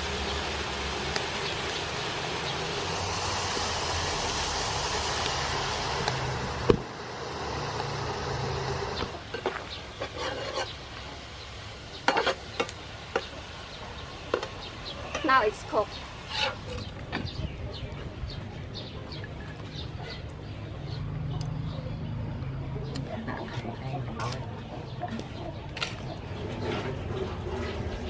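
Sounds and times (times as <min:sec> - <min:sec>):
food sizzling in a wok: 0:00.0 - 0:16.8
metal spatula scraping a pan: 0:09.3 - 0:10.8, 0:12.0 - 0:13.3, 0:16.2 - 0:16.9, 0:26.4 - 0:28.0.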